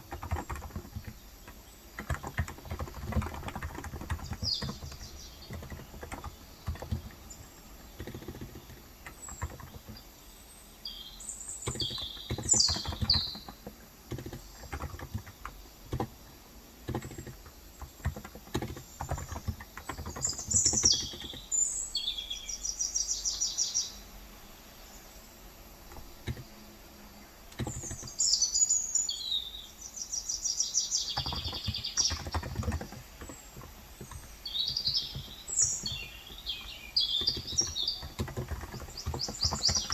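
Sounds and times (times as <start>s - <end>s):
keyboard typing: 0.0s - 10.1s, 11.6s - 21.6s, 25.9s - 26.6s, 27.5s - 28.2s, 31.0s - 39.9s
birds chirping: 0.0s - 39.9s.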